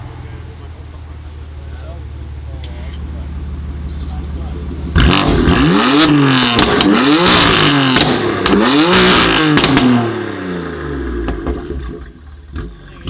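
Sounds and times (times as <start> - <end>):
car engine revving: 0.0 - 13.0
exhaust pops and cracks: 3.9 - 5.8, 6.4 - 10.0, 11.2 - 13.0.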